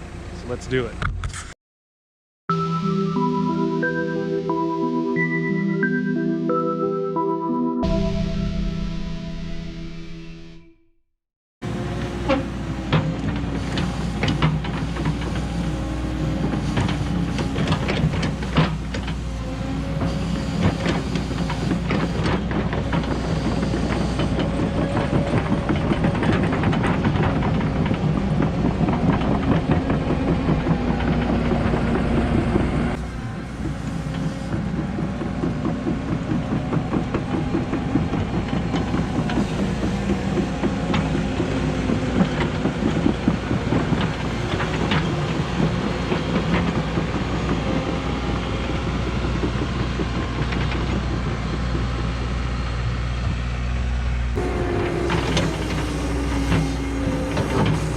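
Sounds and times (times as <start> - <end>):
diesel engine under load: 0.0 - 1.0, 11.6 - 57.9
excavator tracks and bucket clanking: 11.6 - 57.9.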